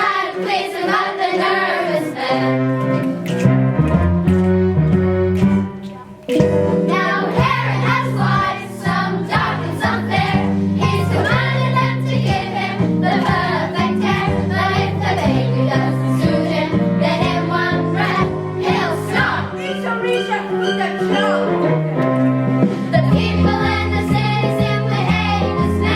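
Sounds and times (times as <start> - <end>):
children singing: 0.0 - 2.6, 6.8 - 21.6, 22.9 - 25.9
instrumental accompaniment: 0.0 - 25.9.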